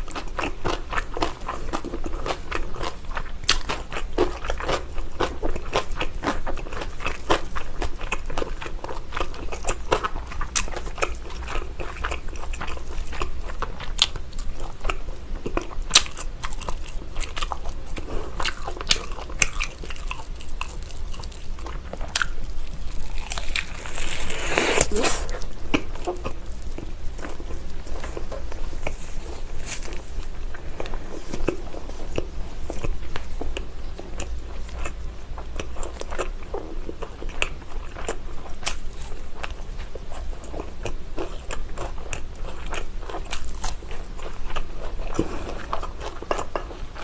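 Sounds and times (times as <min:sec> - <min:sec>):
wet biting and chewing: 0:00.0 - 0:47.0.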